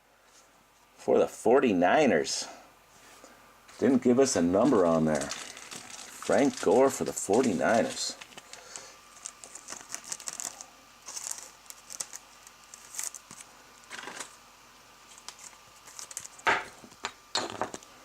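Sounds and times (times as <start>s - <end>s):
trading cards clicking and rustling: 4.6s - 14.4s, 15.1s - 17.8s.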